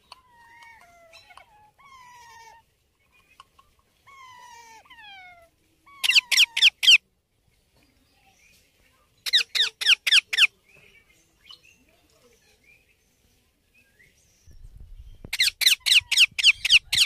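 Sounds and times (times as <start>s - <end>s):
parakeet shrill screeches: 15.3s - 17.0s.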